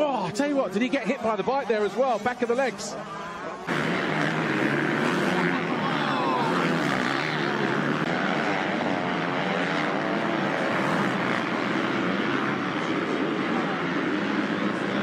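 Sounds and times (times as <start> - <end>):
racing motorcycle engines: 0.0 - 15.0.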